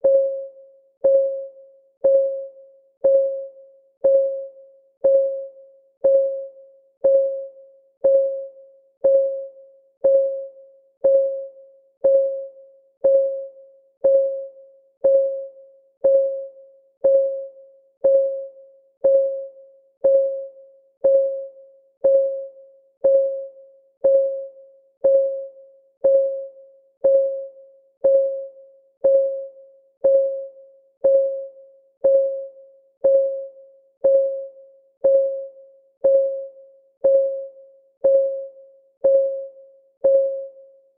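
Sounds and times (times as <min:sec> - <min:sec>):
countdown timer ticking: 0:02.0 - 0:02.4, 0:03.0 - 0:04.4, 0:05.0 - 0:40.6.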